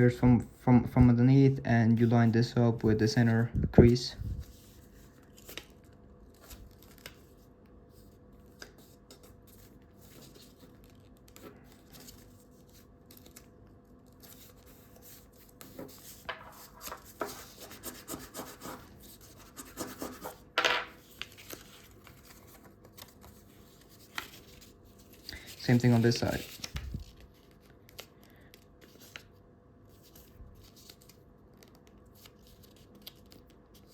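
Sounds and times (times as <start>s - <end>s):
paper rustling and creasing: 2.9s - 19.5s, 21.0s - 33.9s
paper crackle: 4.4s - 17.6s, 21.0s - 33.9s.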